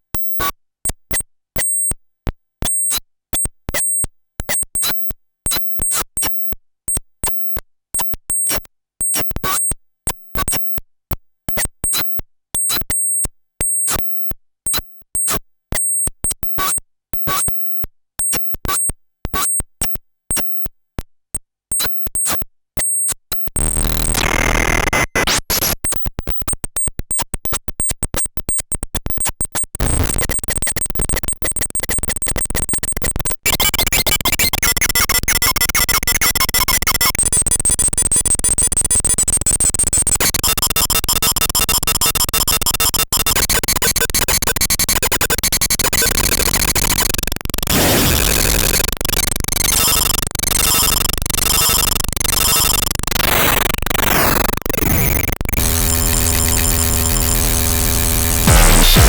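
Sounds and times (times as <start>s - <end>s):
electronic clicks and high pips: 23.6s - 25.8s, 43.3s - 59.0s
dense gritty electronic noise: 23.8s - 25.8s, 55.4s - 59.0s.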